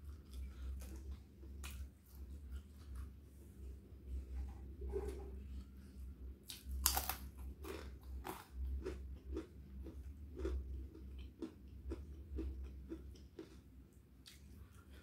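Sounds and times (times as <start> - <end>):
person chewing food: 0.0 - 3.4, 6.4 - 15.0
crisp bite: 6.5 - 8.4.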